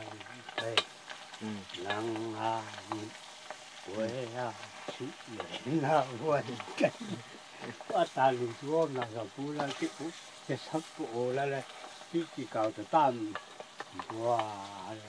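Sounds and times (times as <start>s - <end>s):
man's voice holding wavering tones: 0.0s - 0.8s, 1.4s - 3.1s, 3.9s - 7.1s, 7.9s - 11.6s, 14.0s - 15.0s
food sizzling in a pot: 0.0s - 15.0s.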